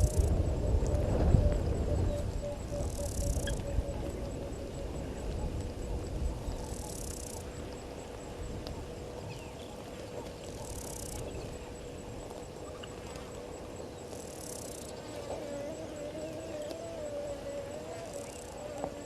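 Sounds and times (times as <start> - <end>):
hissing insect buzz: 0.0 - 0.4, 2.8 - 3.7, 6.7 - 7.5, 10.6 - 11.2, 14.1 - 19.0
high insect trill: 0.0 - 19.0.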